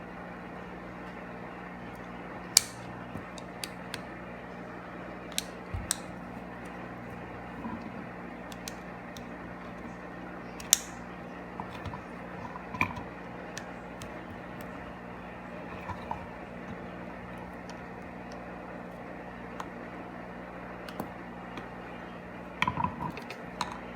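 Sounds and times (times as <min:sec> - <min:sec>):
small parts clicking: 0:02.6 - 0:04.1, 0:05.3 - 0:06.8, 0:08.5 - 0:09.9, 0:10.6 - 0:11.0.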